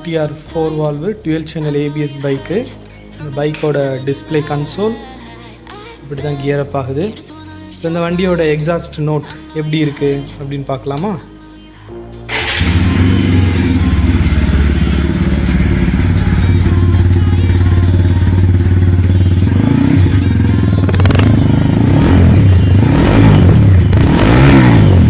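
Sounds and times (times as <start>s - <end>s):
motorcycle engine idling and revving: 12.3s - 25.0s.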